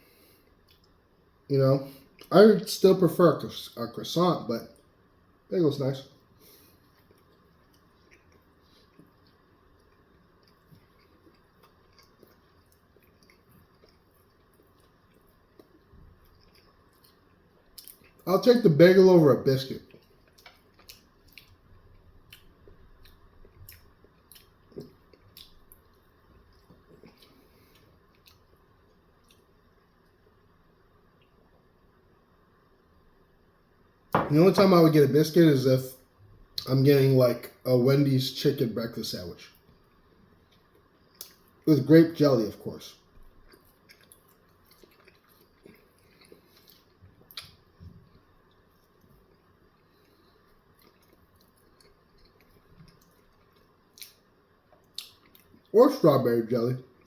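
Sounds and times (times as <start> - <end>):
person chewing food: 0.0 - 1.0, 6.2 - 18.2, 19.8 - 30.2, 39.5 - 41.6, 43.0 - 55.7.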